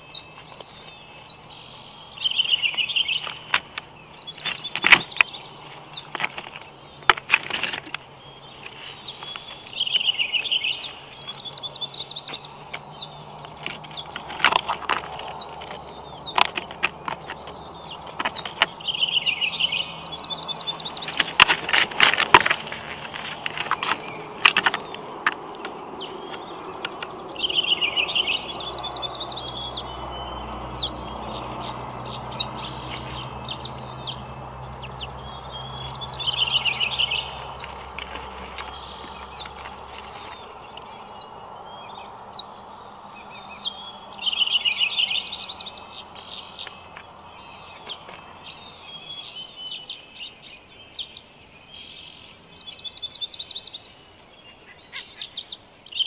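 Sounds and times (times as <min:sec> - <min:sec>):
songbird singing: 0:00.0 - 0:56.0
knocks of sticks in nest: 0:02.5 - 0:11.4, 0:12.2 - 0:28.2, 0:31.1 - 0:41.1
feathers brushing: 0:12.2 - 0:27.2, 0:35.7 - 0:41.2.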